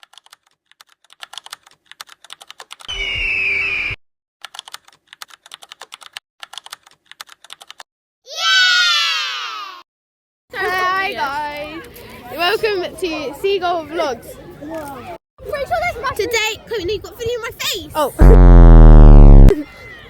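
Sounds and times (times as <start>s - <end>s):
loud sound falling in pitch: 18.2s - 19.6s
noisy sound with high tone: 18.2s - 19.6s.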